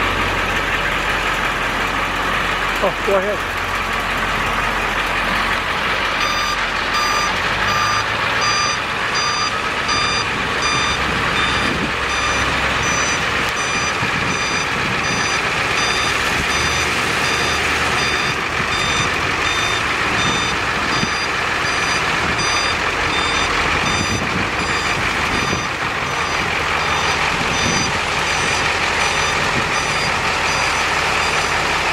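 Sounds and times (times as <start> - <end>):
truck engine running: 0.0 - 31.9
truck backup alarm beeping: 4.5 - 31.9.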